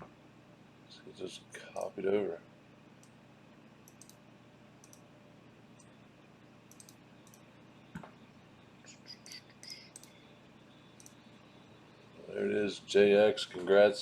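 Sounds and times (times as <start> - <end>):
mouse and keyboard clicks: 6.7 - 7.4.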